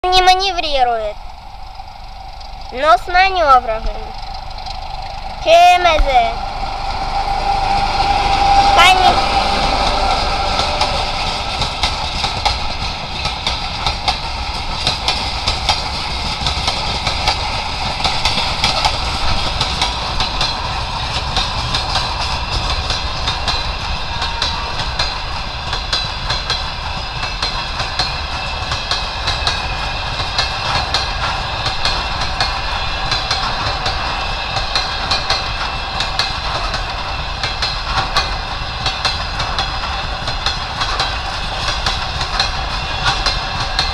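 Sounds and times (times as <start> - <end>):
train wheels clattering over rail joints: 0.2 - 43.9.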